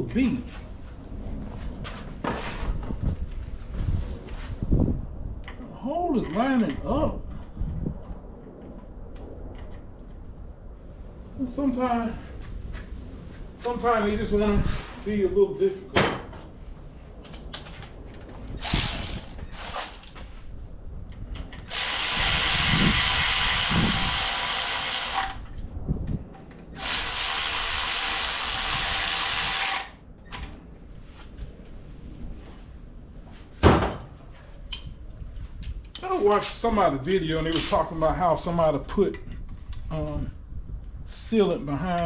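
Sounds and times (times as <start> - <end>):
power tool driving bolts: 18.6 - 20.2, 21.6 - 25.6, 26.8 - 30.0.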